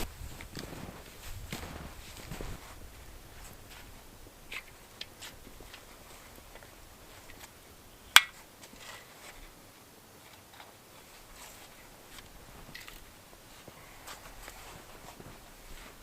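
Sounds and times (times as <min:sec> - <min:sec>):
crunches of firewood in snow: 0:00.0 - 0:09.6, 0:10.3 - 0:16.0
dry stick snapping: 0:08.1 - 0:08.4.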